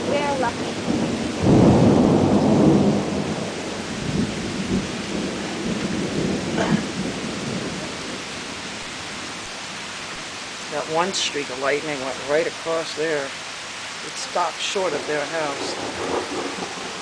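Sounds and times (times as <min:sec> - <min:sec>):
thunder rumbling: 0:00.0 - 0:09.3, 0:14.4 - 0:17.0
rain hissing: 0:00.0 - 0:17.0.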